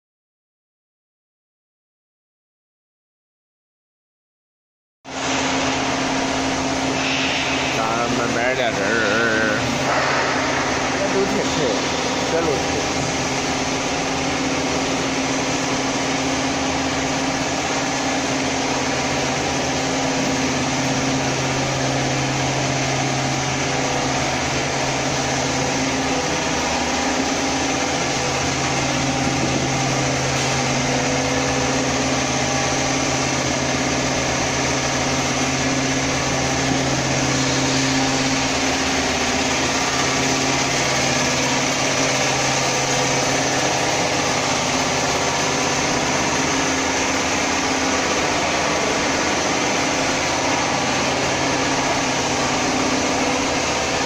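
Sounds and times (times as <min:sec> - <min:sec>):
machine mechanical hum: 0:05.1 - 0:54.0.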